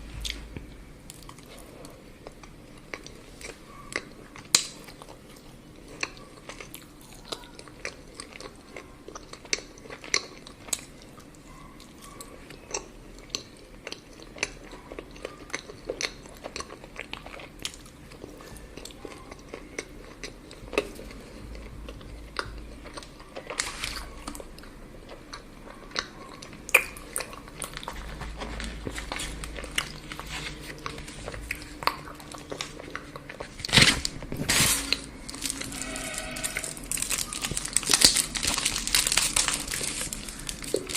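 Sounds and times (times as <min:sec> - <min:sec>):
chewing and crunching chocolate: 0:00.0 - 0:40.9.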